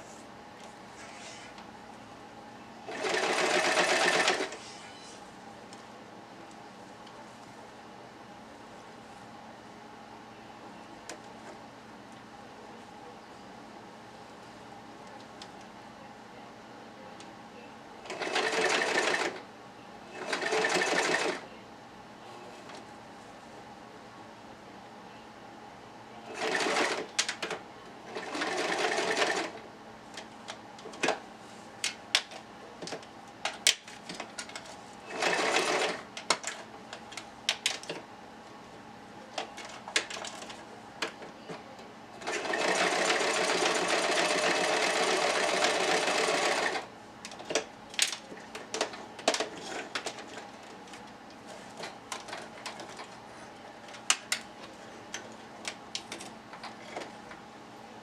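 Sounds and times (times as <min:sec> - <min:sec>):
sewing machine stitching: 0:02.9 - 0:04.6, 0:18.1 - 0:19.4, 0:20.2 - 0:21.4, 0:26.3 - 0:27.1, 0:35.1 - 0:36.0, 0:42.2 - 0:46.8.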